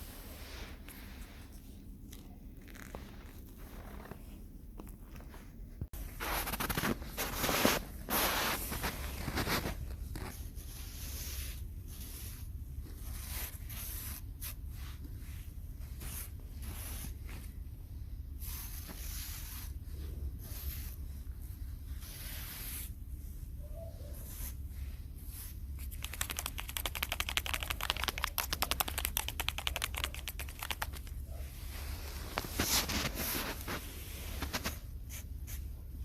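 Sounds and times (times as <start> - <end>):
rough scraping and rustling: 2.6 - 4.4, 5.2 - 14.2, 30.5 - 35.6.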